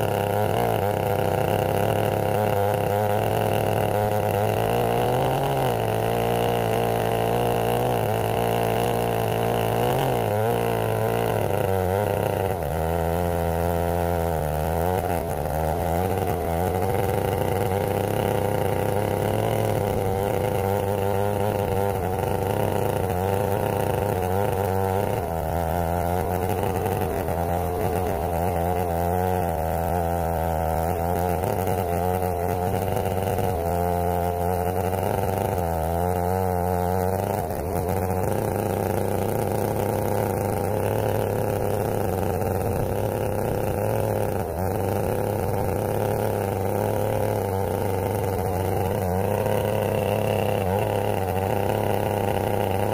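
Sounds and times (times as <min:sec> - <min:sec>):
chainsaw cutting a log: 0:00.0 - 0:52.9.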